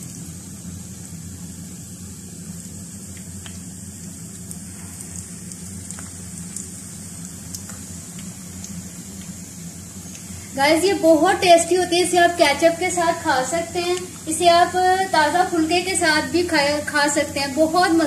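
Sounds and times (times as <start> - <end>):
chillies sizzling in hot oil: 0.0 - 18.0
low steady hum: 0.0 - 18.0
small pops and crackles: 2.6 - 9.4, 10.0 - 10.4.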